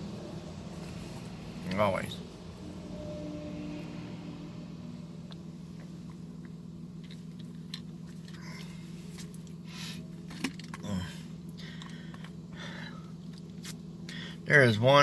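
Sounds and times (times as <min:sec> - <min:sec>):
car cabin drone: 0:00.0 - 0:09.1
person chewing crunchily: 0:05.8 - 0:14.2.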